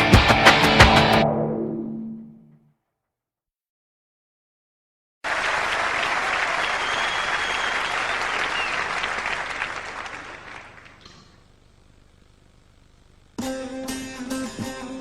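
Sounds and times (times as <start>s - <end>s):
crowd applause: 5.2s - 11.4s
faint whistle: 6.6s - 9.1s.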